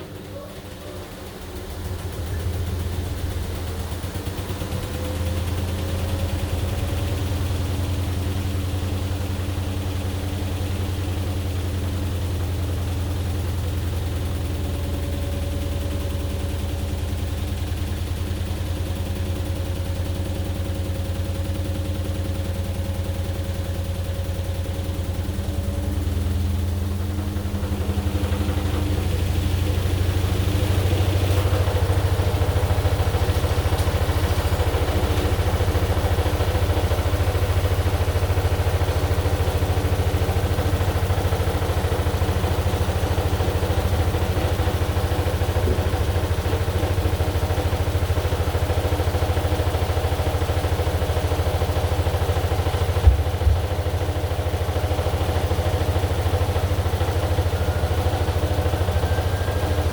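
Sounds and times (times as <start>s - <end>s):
washing machine humming: 0.0s - 59.9s
short knock: 53.0s - 53.7s.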